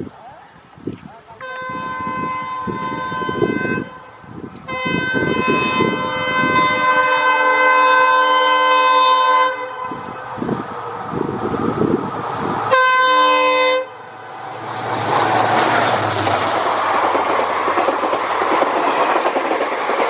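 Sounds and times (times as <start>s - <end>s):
locomotive horn blasts: 1.4s - 10.3s, 12.7s - 14.7s
passing train rumble: 1.6s - 20.0s.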